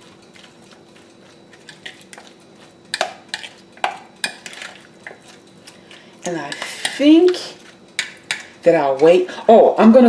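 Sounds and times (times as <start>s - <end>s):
utensil scraping against bowl: 4.2s - 9.3s.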